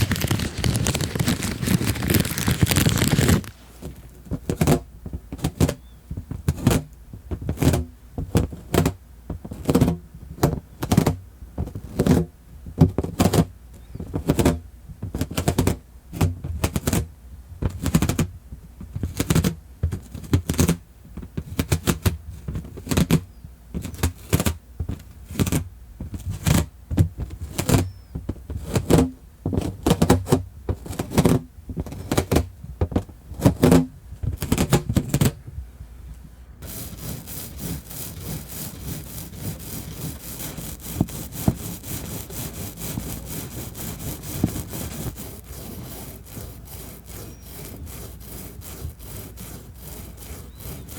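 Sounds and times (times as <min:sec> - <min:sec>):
rubber balloon squeaking: 0:00.0 - 0:04.0, 0:46.1 - 0:48.2, 0:50.4 - 0:50.9.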